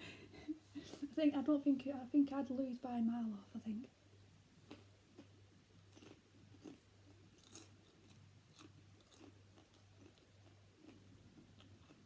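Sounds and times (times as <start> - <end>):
chewing crunches: 4.6 - 12.0.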